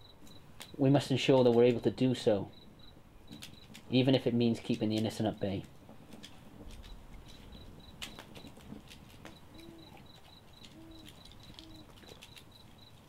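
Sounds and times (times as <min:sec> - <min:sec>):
bird hooting softly: 0:09.2 - 0:13.0.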